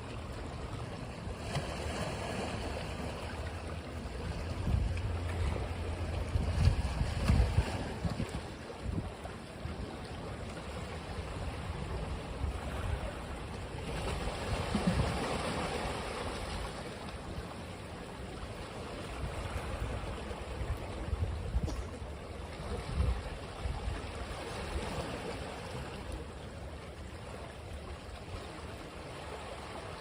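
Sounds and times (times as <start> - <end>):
ocean waves on a beach: 0.0 - 30.0.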